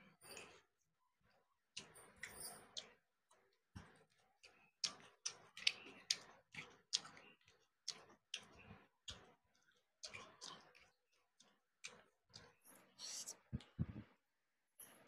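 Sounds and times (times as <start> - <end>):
person chewing with mouth clicks: 3.8 - 12.1.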